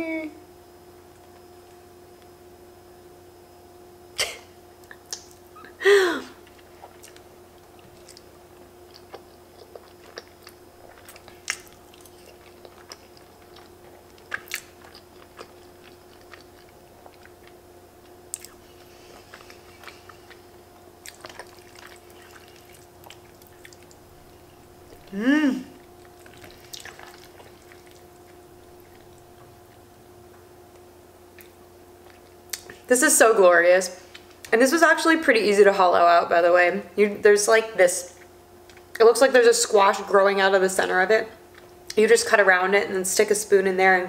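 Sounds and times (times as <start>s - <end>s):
faint steady hum: 0.0s - 44.0s
person chewing with wet smacks: 4.8s - 5.6s, 6.4s - 32.9s, 38.2s - 39.0s
short falling voice hum: 25.1s - 25.8s.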